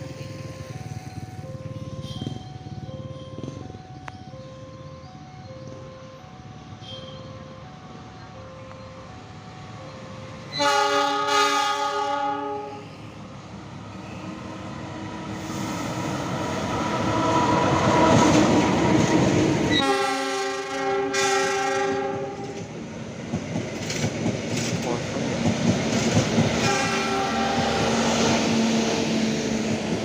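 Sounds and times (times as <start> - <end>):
train wheels running: 0.0 - 10.7, 13.0 - 30.0
train horn blasts: 6.8 - 7.6, 10.5 - 13.0, 19.7 - 22.7, 26.6 - 28.4.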